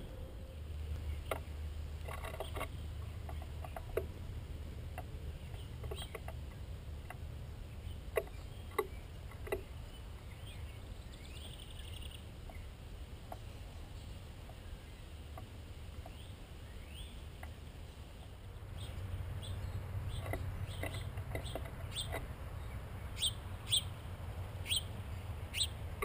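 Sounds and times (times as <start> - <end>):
steady low rumble: 0.0 - 26.0
birds pecking on feeder: 0.8 - 13.6, 18.7 - 26.0.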